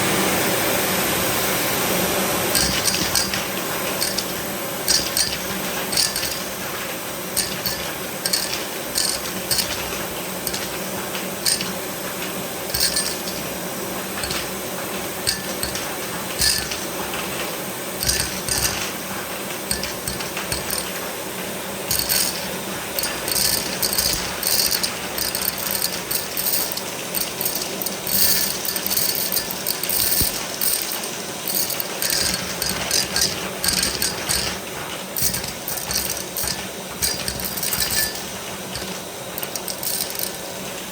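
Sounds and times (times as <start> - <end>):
glass marbles clicking: 2.5 - 6.6, 7.4 - 9.8, 10.5 - 10.7, 11.4 - 11.8, 12.7 - 13.6, 14.2 - 14.5, 15.2 - 16.9, 18.0 - 18.8, 19.7 - 21.0, 21.9 - 34.6, 35.2 - 40.4.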